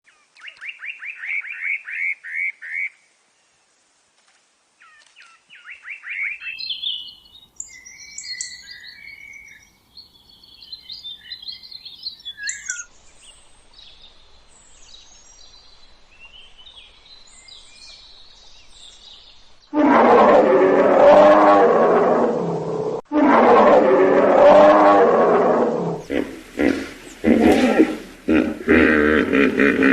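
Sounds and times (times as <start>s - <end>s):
songbirds chirping: 0.0s - 23.0s, 24.2s - 29.9s
deep animal roar: 19.7s - 29.9s.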